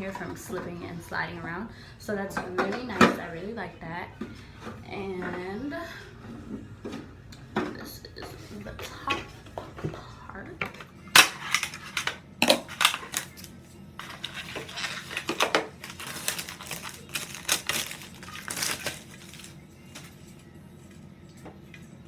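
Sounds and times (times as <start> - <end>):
scraping and rustling: 10.7 - 20.3
acrylic pieces clacking together: 11.2 - 20.1.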